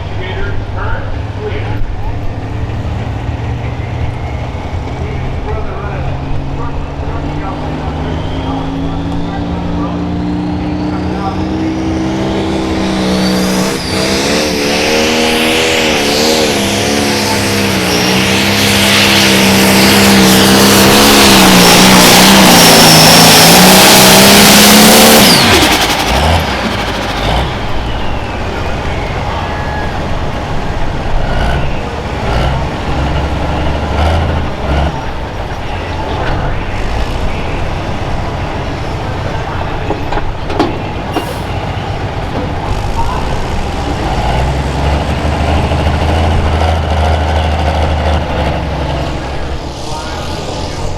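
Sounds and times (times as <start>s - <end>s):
diesel tractor engine under load: 0.0s - 50.9s
high whine: 8.3s - 31.0s, 47.9s - 50.9s
engine knocks: 23.7s - 50.9s.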